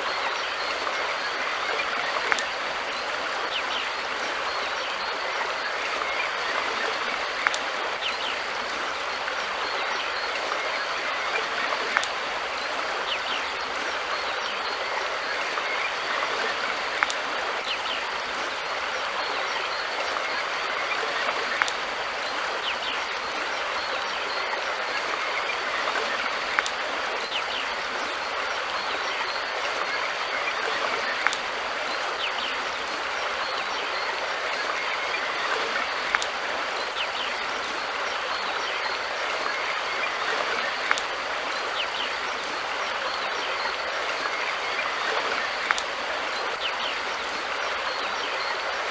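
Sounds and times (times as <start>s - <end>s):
river water flowing: 0.0s - 48.9s.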